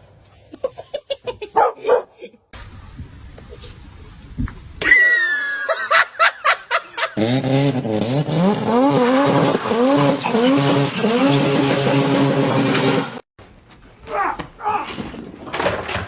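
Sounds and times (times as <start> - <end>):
engine revving: 7.2 - 13.3.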